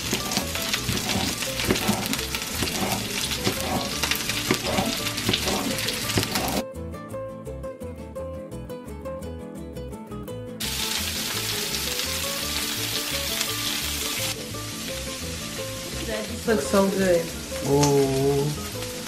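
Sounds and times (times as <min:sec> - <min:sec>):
vegetables sizzling on griddle: 0:00.0 - 0:06.6, 0:10.6 - 0:19.0
wooden spoon stirring: 0:00.0 - 0:06.6.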